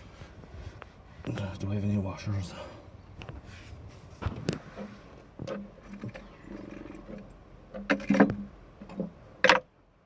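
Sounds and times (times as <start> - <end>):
hardware clicking and knocking: 7.0 - 9.7.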